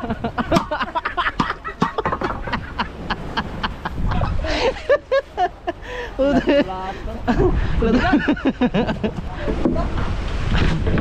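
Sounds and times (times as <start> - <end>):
sharp knocks and clatter: 1.4 - 2.6, 9.6 - 11.0.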